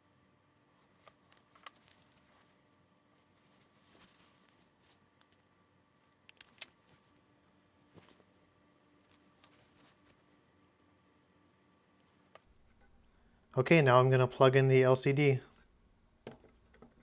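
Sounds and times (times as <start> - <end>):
soft rustle: 0.7 - 5.3, 9.1 - 10.4.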